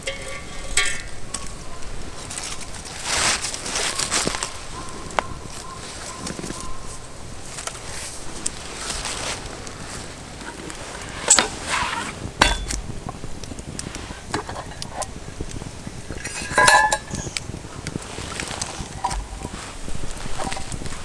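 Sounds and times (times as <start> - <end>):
metal cookware clinking: 0.0 - 2.9, 10.4 - 21.0.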